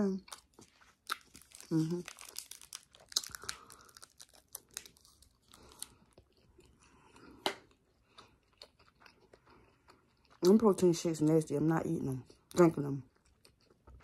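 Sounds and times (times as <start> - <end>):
person chewing: 0.2 - 10.6, 12.3 - 14.0.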